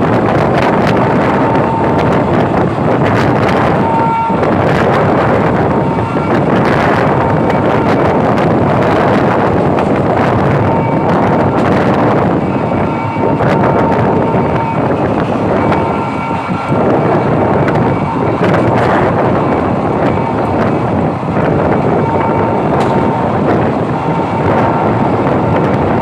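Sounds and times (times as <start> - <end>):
train running at speed: 0.0 - 26.0
wind rushing on microphone: 0.0 - 26.0.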